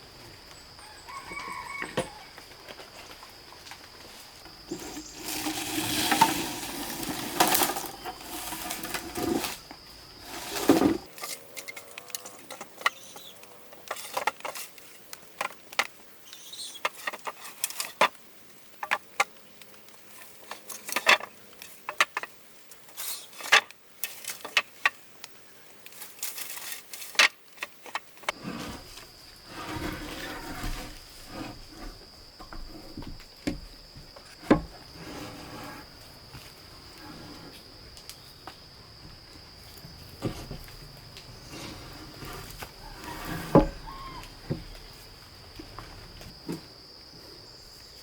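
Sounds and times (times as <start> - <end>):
scraping and rustling: 4.1 - 11.5, 25.9 - 33.3, 34.2 - 37.7, 40.2 - 45.1.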